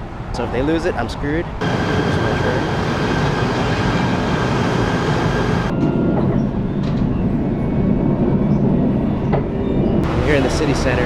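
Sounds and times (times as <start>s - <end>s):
high whine and hiss: 1.6s - 5.7s
train rumble: 1.6s - 11.0s.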